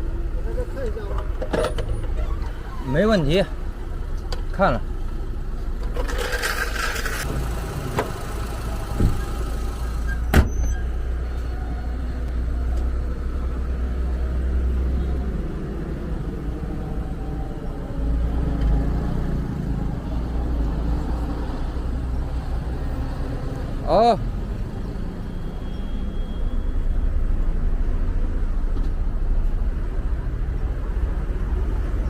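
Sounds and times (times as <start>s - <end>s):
car engine rumbling: 0.0s - 25.4s.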